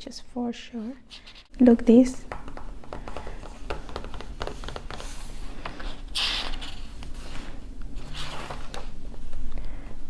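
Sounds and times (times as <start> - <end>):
book pages rustling: 2.3 - 9.5
page swishing over: 4.8 - 9.0.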